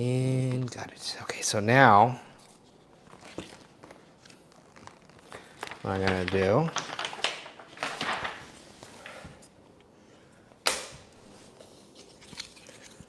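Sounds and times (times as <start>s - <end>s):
vinyl film rustling and scraping: 2.3s - 9.6s, 11.2s - 13.0s
sharp snap: 10.6s - 11.0s.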